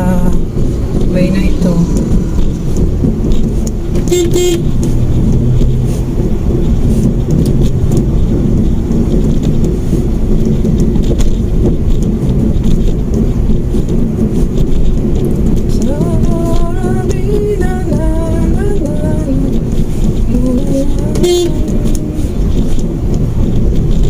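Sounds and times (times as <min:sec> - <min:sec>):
road and engine noise in car: 0:00.0 - 0:24.0
car horn toot: 0:04.0 - 0:04.8, 0:21.1 - 0:21.7.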